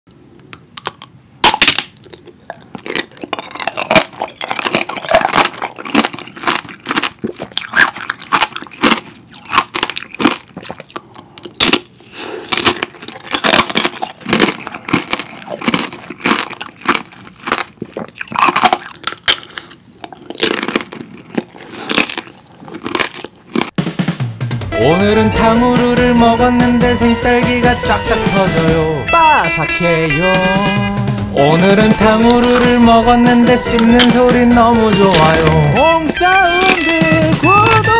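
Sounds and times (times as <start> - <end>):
biting and chewing candy: 0.5 - 23.8, 31.4 - 37.9
sugar coating cracking: 0.8 - 23.8, 32.1 - 37.9.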